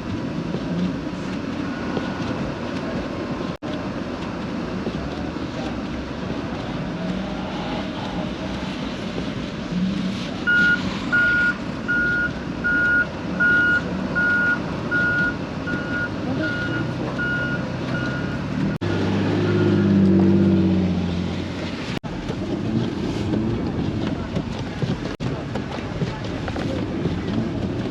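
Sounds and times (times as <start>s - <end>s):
vehicle and road rumble: 0.0s - 27.9s
reversing beeper: 10.5s - 18.5s, 19.3s - 20.6s.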